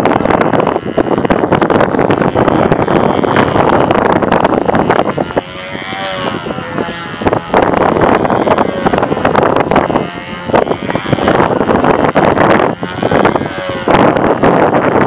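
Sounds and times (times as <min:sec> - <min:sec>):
model airplane engine buzzing: 0:00.0 - 0:15.0
wind buffeting microphone: 0:00.0 - 0:15.0.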